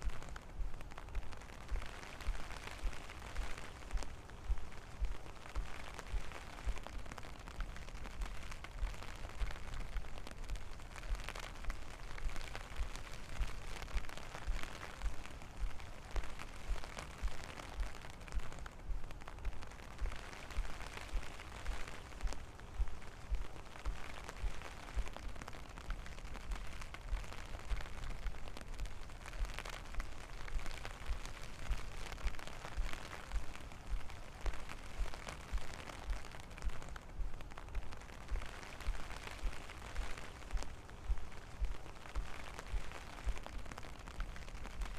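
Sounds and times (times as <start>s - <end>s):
rain pattering: 0.0s - 44.9s
walking footsteps: 0.0s - 44.9s.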